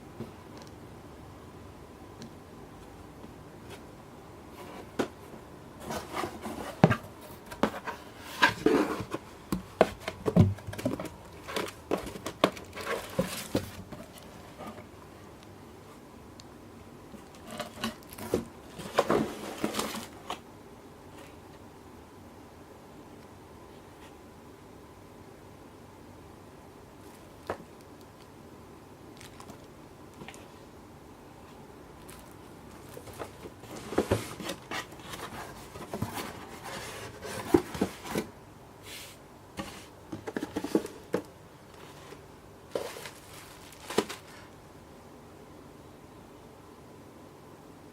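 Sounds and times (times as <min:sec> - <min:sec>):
packaging rustling and crinkling: 0:05.8 - 0:14.9, 0:17.2 - 0:20.4, 0:29.2 - 0:30.5, 0:32.0 - 0:38.3, 0:39.6 - 0:44.6.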